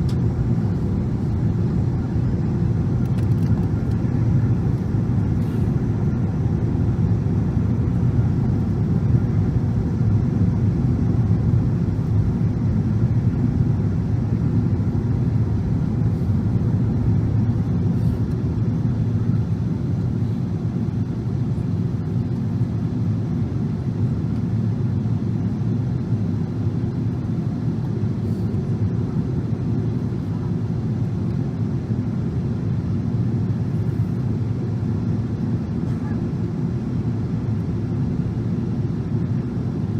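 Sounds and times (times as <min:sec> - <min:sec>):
airflow noise: 0:00.0 - 0:20.5
jet engine rumble in cabin: 0:00.0 - 0:39.9.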